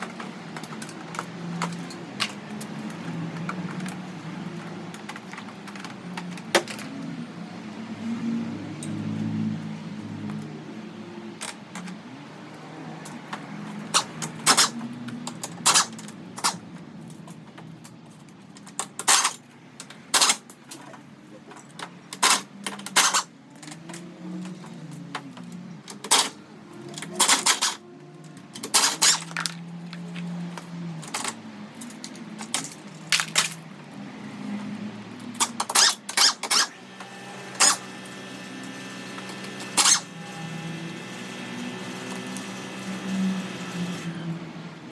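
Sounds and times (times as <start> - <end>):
metal tools clinking: 13.8 - 33.7.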